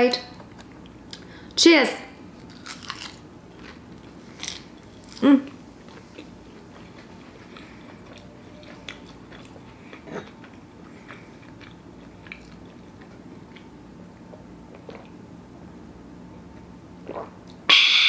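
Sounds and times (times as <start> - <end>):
wet chewing with mouth clicks: 2.5 - 15.2.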